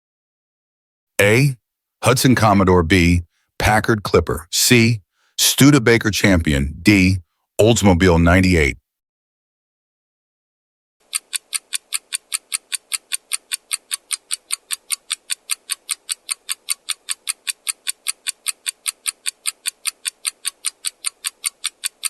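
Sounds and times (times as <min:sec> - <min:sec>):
clock-like timer ticking: 0:11.0 - 0:22.0.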